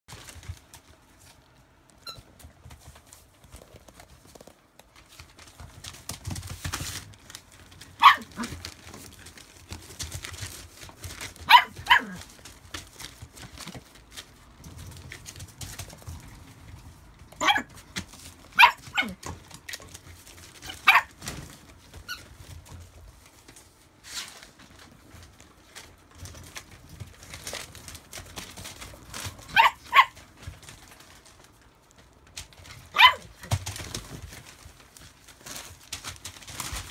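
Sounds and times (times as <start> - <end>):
puppies barking and yipping: 8.0 - 8.5, 11.3 - 12.2, 18.5 - 19.2, 20.5 - 21.3, 29.1 - 30.5, 32.9 - 33.4.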